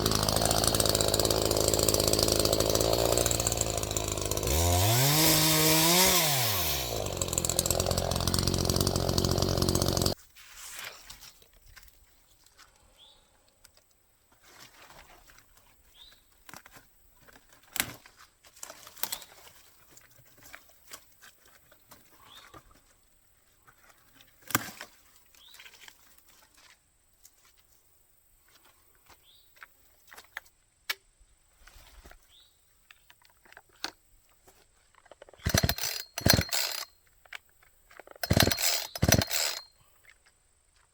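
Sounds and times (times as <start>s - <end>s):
chainsaw engine idling: 0.0s - 10.2s, 35.4s - 36.9s, 38.2s - 39.7s.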